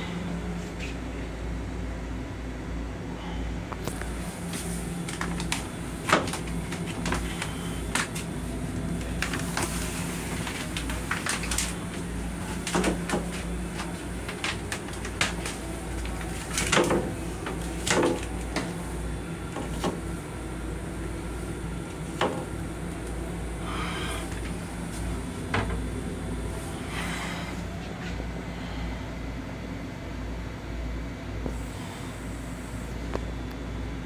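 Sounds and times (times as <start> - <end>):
train low rumble: 0.0 - 34.0
paper clicks and rattles: 3.9 - 18.8.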